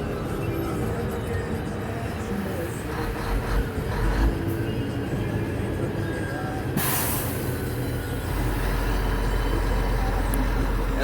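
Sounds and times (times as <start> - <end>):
diesel truck engine from inside cab: 0.0 - 11.0
air brake hiss: 6.8 - 7.6.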